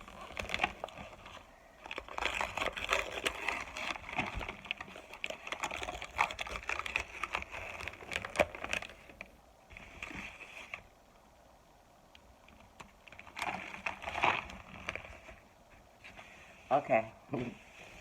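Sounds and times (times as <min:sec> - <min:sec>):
crunchy crackling of cornstarch: 0:00.0 - 0:09.3.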